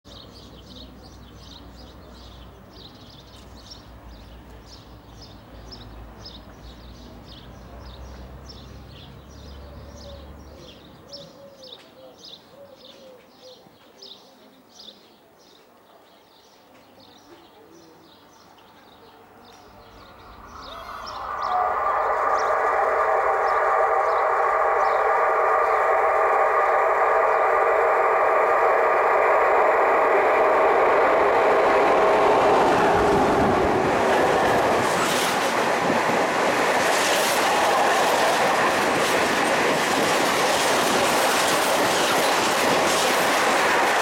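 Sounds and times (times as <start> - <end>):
low rumble: 19.6 - 36.9.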